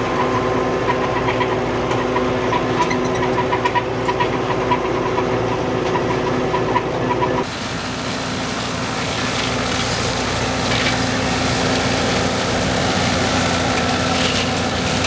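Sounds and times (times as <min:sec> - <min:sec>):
broad steady hiss: 0:07.4 - 0:15.0
tractor engine running: 0:07.4 - 0:15.0.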